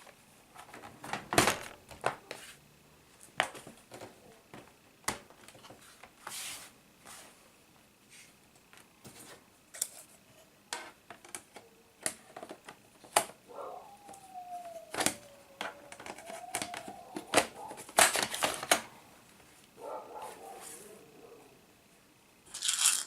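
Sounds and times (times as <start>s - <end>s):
plastic parts clicking and snapping: 14.8s - 18.9s.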